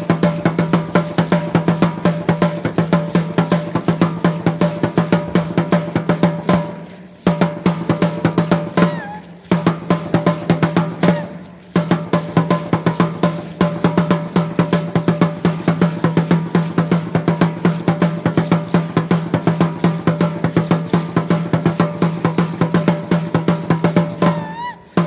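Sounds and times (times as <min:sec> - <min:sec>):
deep drum beaten fast: 0:00.0 - 0:25.0
wavering high tone: 0:08.8 - 0:09.4.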